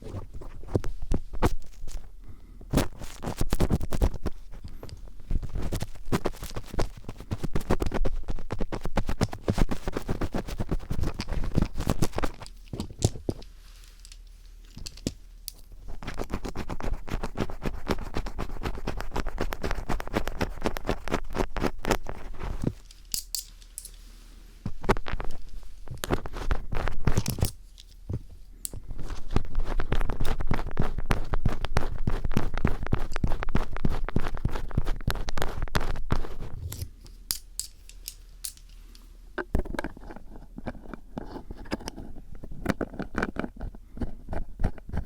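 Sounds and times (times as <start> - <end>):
screwdriver scratching microphone: 2.7 - 12.5, 15.8 - 22.8, 24.8 - 27.4, 28.7 - 36.9.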